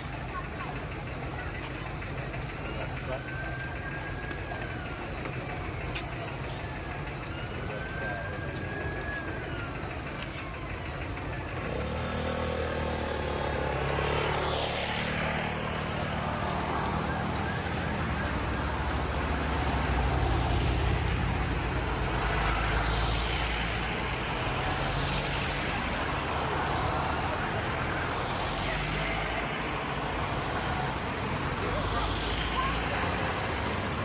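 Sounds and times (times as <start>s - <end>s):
tyre and street noise: 0.0s - 34.0s
heavy vehicle engine droning past: 10.4s - 34.0s.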